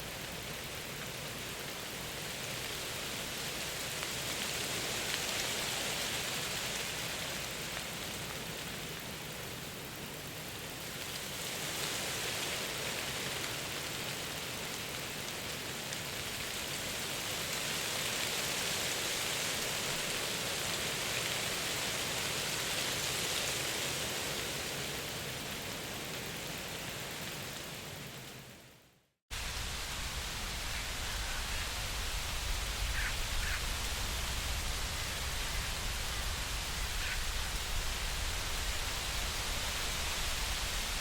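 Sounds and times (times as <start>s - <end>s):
rushing hiss: 29.3s - 41.0s.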